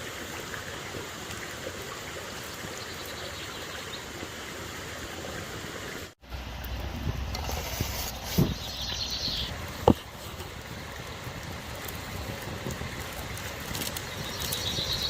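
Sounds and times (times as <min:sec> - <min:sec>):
stream flowing: 0:00.0 - 0:15.0.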